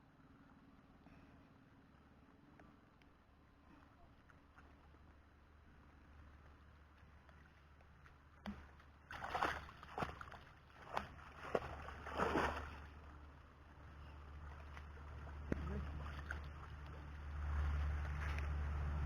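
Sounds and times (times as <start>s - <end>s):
water splashing and sloshing: 3.8s - 19.0s.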